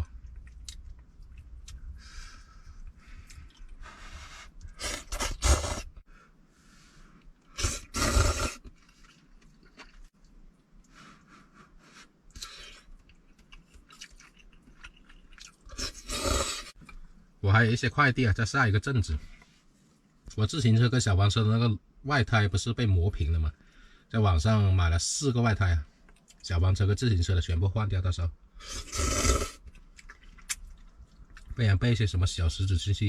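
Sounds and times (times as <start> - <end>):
chewing noodles: 0.0 - 1.8, 7.2 - 11.3, 12.3 - 17.0, 28.7 - 31.6.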